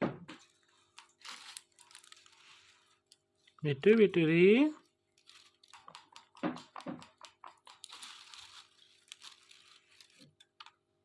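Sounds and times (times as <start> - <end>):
parrot beak clicking and crunching: 5.2 - 9.4.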